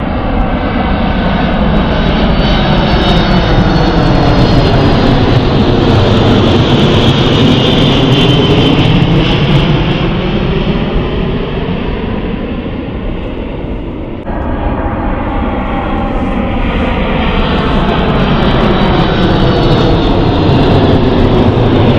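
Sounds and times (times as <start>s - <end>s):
jet airliner passing: 0.0s - 21.9s.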